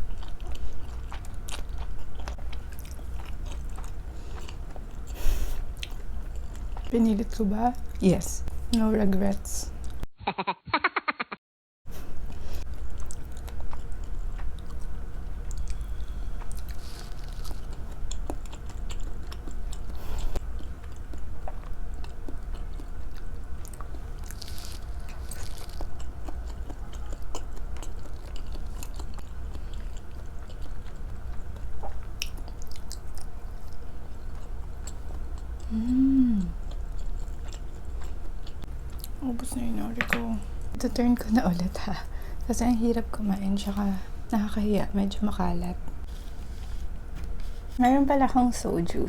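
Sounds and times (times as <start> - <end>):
person chewing food: 0.0 - 6.9, 12.1 - 39.2
person humming: 35.7 - 36.6.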